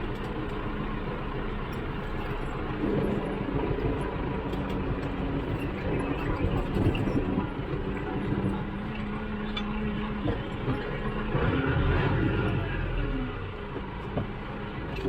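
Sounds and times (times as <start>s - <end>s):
tractor engine droning: 0.0s - 15.0s.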